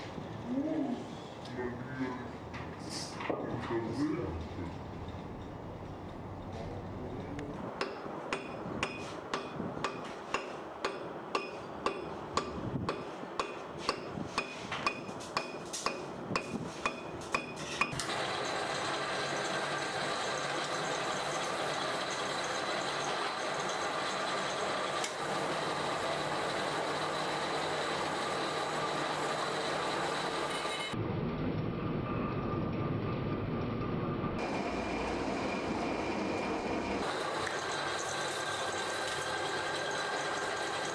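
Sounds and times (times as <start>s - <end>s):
hammer striking steel: 7.8s - 25.2s
machine noise with high whine: 17.0s - 40.9s.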